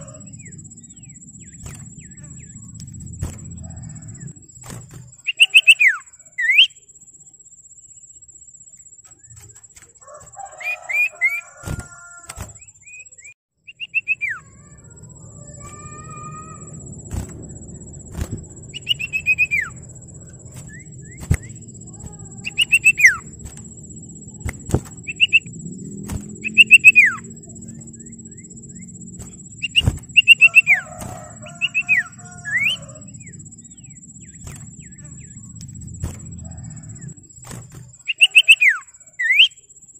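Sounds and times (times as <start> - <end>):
low background rumble: 0.0 - 5.2, 13.7 - 38.1
bird whistled calls: 5.2 - 6.8, 10.5 - 17.3, 18.6 - 19.9, 20.5 - 23.4, 24.4 - 25.5, 26.4 - 27.4, 28.0 - 35.5, 38.0 - 39.6.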